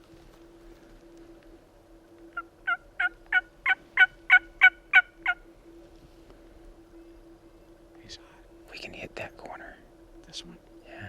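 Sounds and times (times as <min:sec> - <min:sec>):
turkey yelps: 0:02.6 - 0:05.4.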